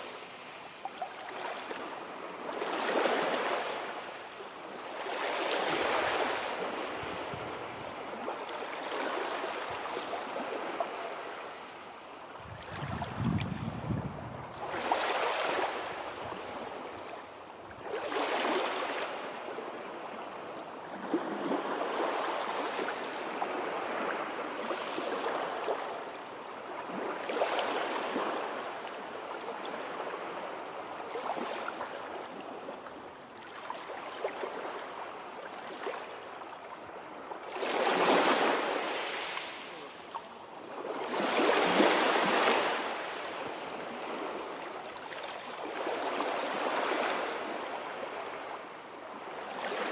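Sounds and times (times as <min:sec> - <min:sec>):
sea waves breaking: 0:12.4 - 0:17.1.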